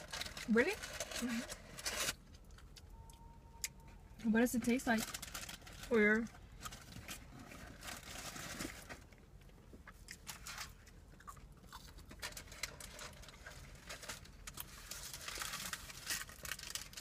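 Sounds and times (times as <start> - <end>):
chewing french fries: 9.1 - 17.0.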